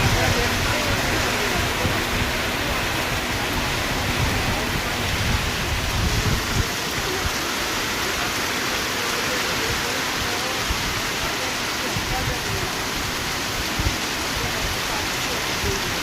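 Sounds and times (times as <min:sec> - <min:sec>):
low rumble: 0:00.0 - 0:08.3
rain falling: 0:00.0 - 0:16.0.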